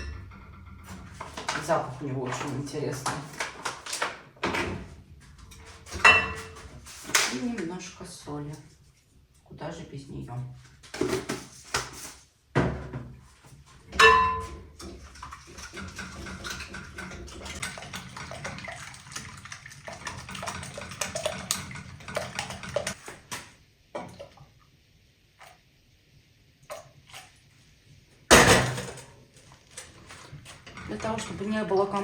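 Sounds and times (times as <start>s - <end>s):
kitchenware clinking: 0.0s - 7.3s, 13.9s - 18.4s, 28.3s - 29.1s, 30.1s - 32.0s.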